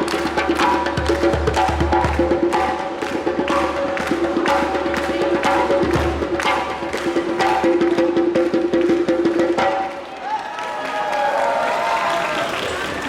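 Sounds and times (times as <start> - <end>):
sharp wood-block strikes: 0.0 - 10.1
percussion group drumming: 0.0 - 10.8.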